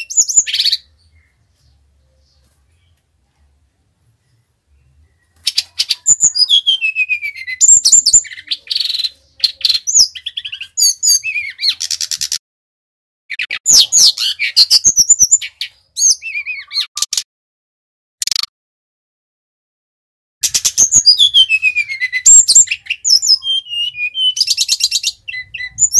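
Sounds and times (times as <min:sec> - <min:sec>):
flycatcher singing: 0:20.4 - 0:25.9.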